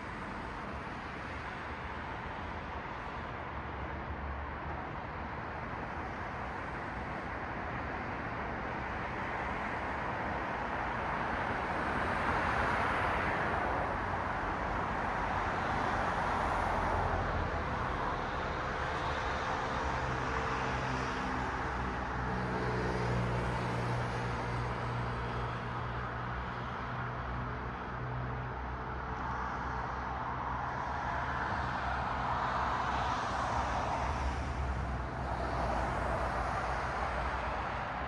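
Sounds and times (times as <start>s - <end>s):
cars passing: 29.3s - 38.0s.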